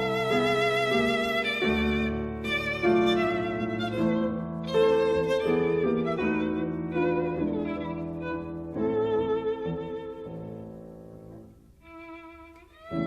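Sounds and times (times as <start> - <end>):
string or piano accompaniment: 0.0 - 13.0
violin melody with vibrato: 0.0 - 13.0.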